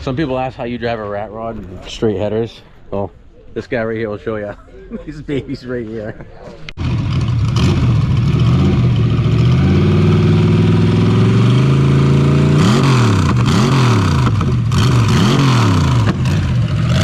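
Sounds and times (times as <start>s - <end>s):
engine revving: 6.8s - 17.0s.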